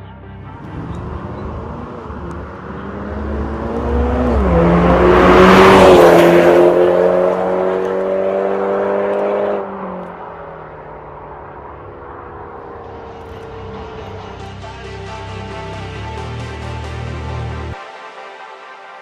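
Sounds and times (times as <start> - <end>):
car exhaust note while driving: 0.4 - 14.6.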